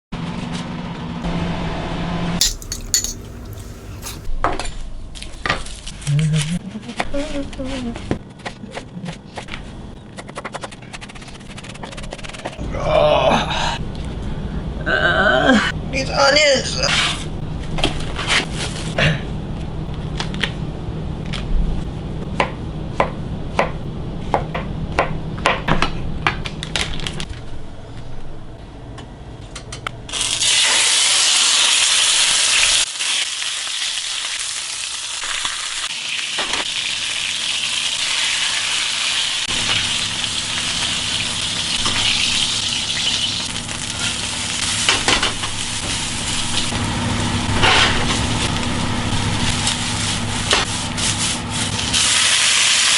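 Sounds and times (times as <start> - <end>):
utensil clicking and scraping in pan: 2.4 - 4.3
food sizzling in hot oil: 30.1 - 46.8, 51.8 - 52.9.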